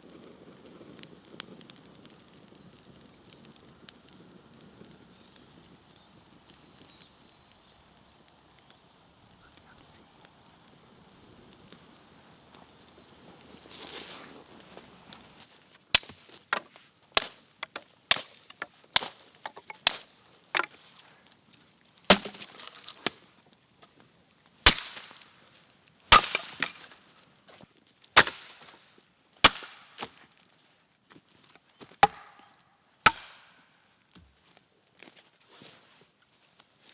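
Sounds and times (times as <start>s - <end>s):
axe chopping wood: 16.0s - 20.8s, 22.1s - 23.2s, 24.7s - 25.2s, 26.1s - 27.0s, 28.2s - 28.8s, 29.4s - 30.2s, 31.9s - 32.5s, 33.1s - 33.6s.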